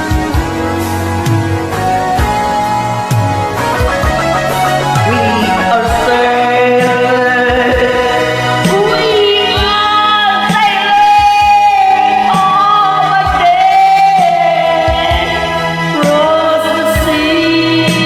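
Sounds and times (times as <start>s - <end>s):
slow ballad music: 0.0s - 18.0s
stepping bass line: 0.4s - 11.6s
wordless choir-like singing: 3.5s - 11.1s.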